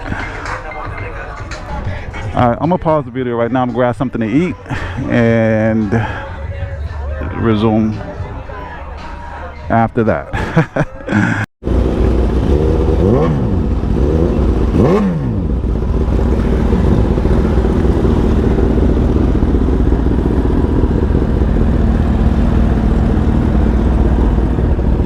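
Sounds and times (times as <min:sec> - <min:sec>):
motorcycle engine running: 0:11.6 - 0:25.0.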